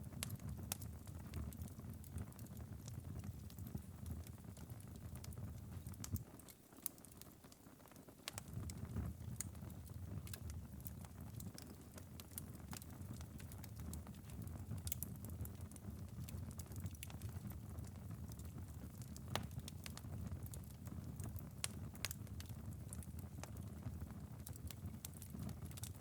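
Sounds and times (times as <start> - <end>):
wood fire embers crackling: 0.0 - 26.0.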